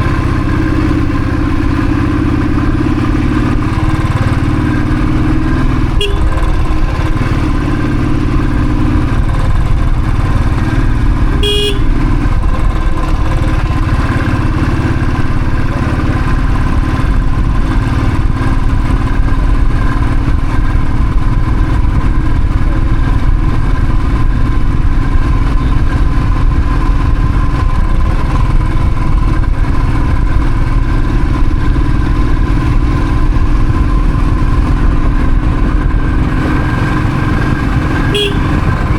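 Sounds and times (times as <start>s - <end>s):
motorcycle engine running: 0.0s - 38.9s
motorcycle horn toot: 5.8s - 6.6s, 11.3s - 12.3s, 38.0s - 38.9s.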